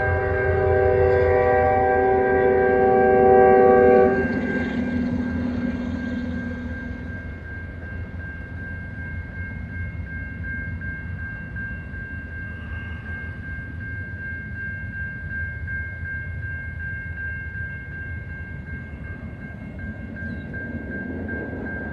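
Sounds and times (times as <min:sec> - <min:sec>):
locomotive air horn: 0:00.0 - 0:04.6
steady high-pitched tone: 0:00.0 - 0:21.9
train rumbling past: 0:00.0 - 0:21.9.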